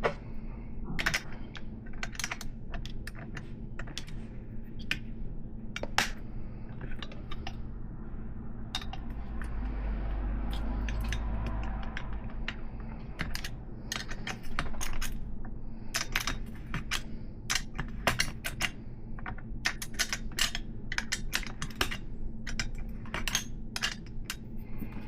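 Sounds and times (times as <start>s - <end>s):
metal clicks and clinks: 10.4s - 15.3s, 15.9s - 25.0s.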